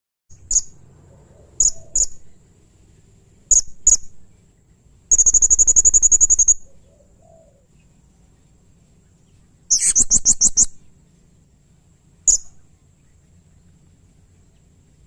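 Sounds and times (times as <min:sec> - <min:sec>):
parrot rapid trill: 0:05.1 - 0:06.6, 0:09.7 - 0:10.8, 0:12.3 - 0:12.6
parrot squeaky calls: 0:09.7 - 0:10.8, 0:12.3 - 0:12.5.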